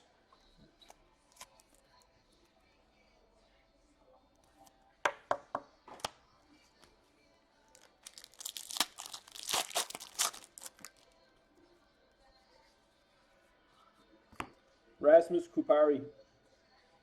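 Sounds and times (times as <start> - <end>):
foil wrapper tearing: 7.8 - 11.0.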